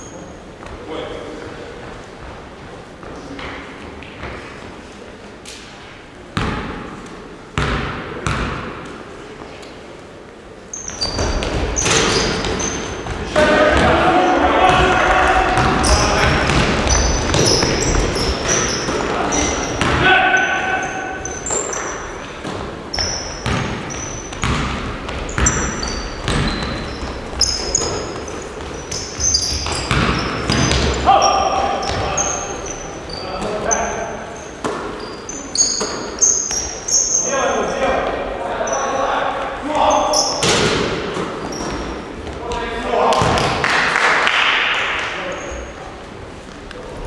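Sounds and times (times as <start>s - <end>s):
sneaker squeaks: 0.0s - 0.6s, 10.6s - 42.6s, 45.2s - 45.8s
basketball bouncing on gym floor: 6.4s - 6.9s, 7.6s - 8.8s, 10.9s - 14.1s, 14.7s - 20.1s, 22.4s - 32.4s, 43.2s - 43.6s
short high-pitched squeaks: 32.2s - 37.4s.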